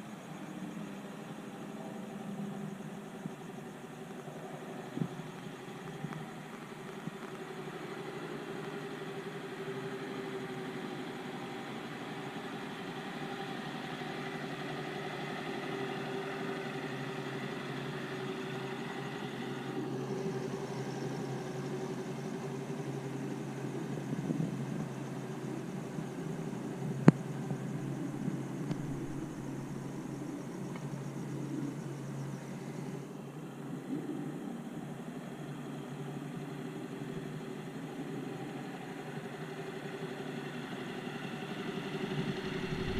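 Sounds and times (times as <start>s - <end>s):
motorcycle engine idling: 26.2s - 32.7s, 40.8s - 42.9s.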